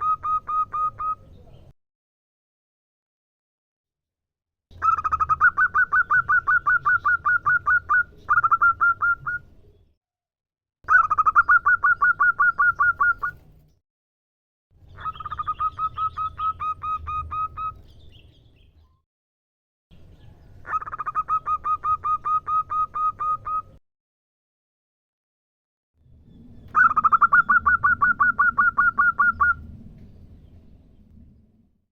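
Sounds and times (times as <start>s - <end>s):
dove calling: 0.0s - 1.3s, 4.7s - 9.5s, 10.9s - 13.5s, 14.8s - 18.6s, 20.5s - 23.8s, 26.6s - 29.8s.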